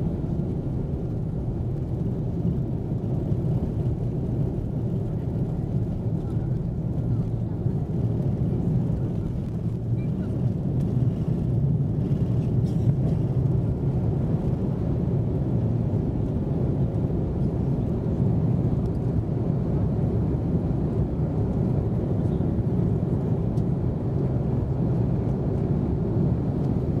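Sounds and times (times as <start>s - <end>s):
aircraft engines rumbling in cabin: 0.0s - 27.0s.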